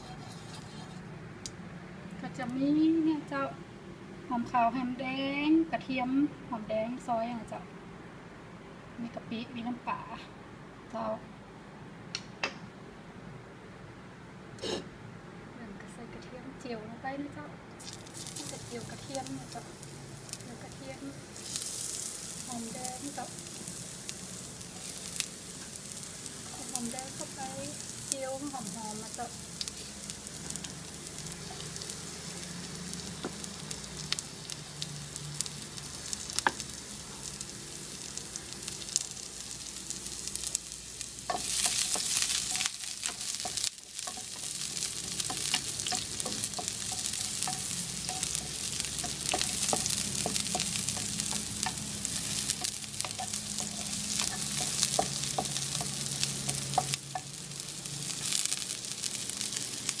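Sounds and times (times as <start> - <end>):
wooden spatula scraping a pan: 0.0 - 1.1
shallots sizzling in oil: 17.8 - 60.0.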